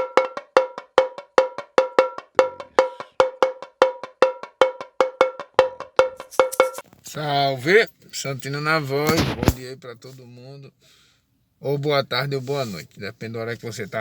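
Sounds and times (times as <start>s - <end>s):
cowbell-like percussion rhythm: 0.0s - 6.8s.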